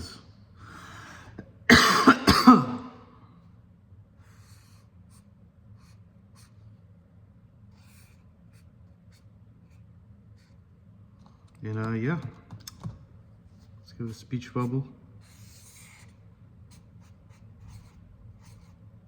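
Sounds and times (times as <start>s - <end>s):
man coughing: 1.4s - 3.1s.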